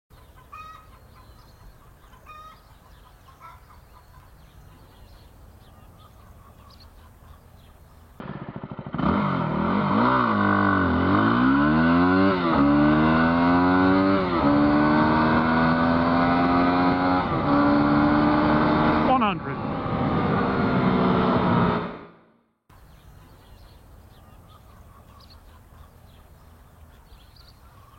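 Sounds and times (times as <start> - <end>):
faint bird chirps: 0.1 - 8.1, 22.7 - 27.9
motorcycle engine accelerating: 8.1 - 22.6.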